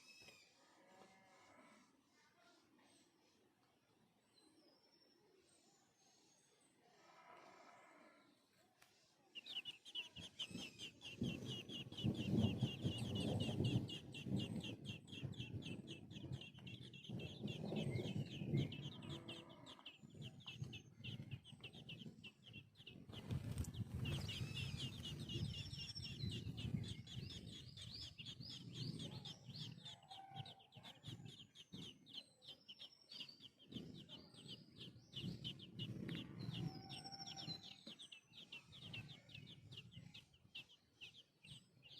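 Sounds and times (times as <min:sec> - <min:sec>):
baby birds chirping: 0:08.8 - 0:41.9.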